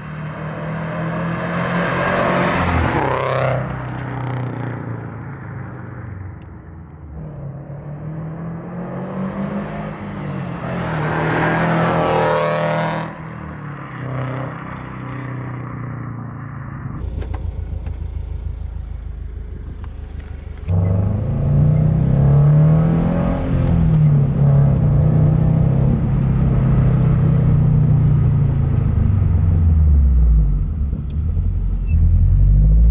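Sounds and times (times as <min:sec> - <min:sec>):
deep car exhaust note: 0:17.0 - 0:23.1
car engine revving: 0:17.0 - 0:27.7.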